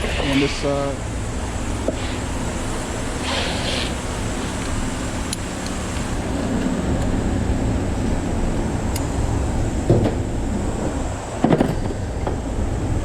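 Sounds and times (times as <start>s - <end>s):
electric fans humming: 0.0s - 13.0s
short hiss: 1.8s - 6.0s.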